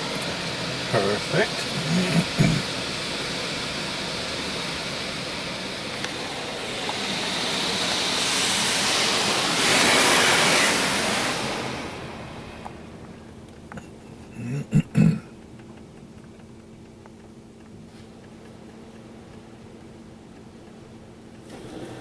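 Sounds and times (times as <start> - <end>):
water spraying on car: 0.0 - 13.0, 21.4 - 22.0.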